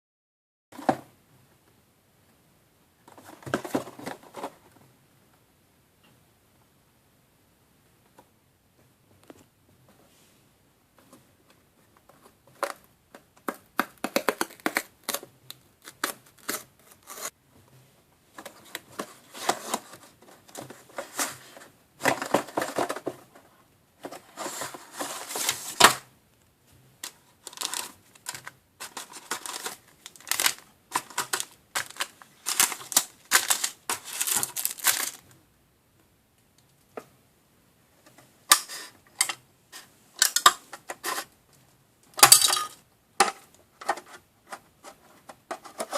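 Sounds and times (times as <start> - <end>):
plastic parts clicking: 27.0 - 35.2, 40.2 - 41.2
packaging crinkling and rustling: 27.0 - 35.3.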